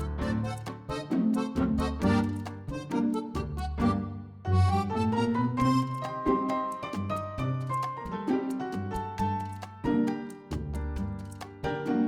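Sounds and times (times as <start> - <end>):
upbeat background music: 0.0 - 4.0, 4.8 - 10.3.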